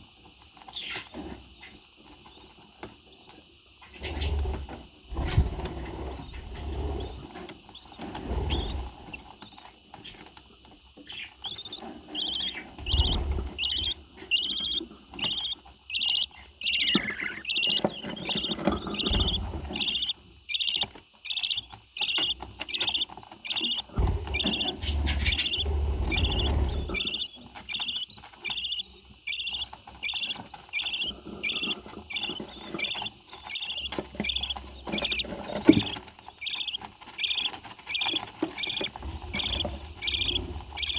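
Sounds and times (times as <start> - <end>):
parrot chirping: 11.2 - 40.9.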